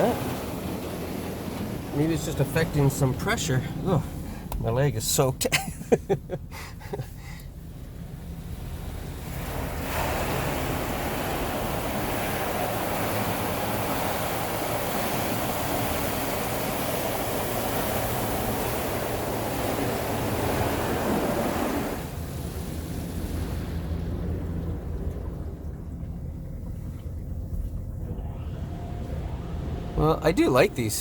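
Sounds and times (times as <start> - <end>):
water jets spraying van: 0.0 - 24.5, 28.1 - 31.0
low hum: 0.6 - 12.4, 22.1 - 31.0.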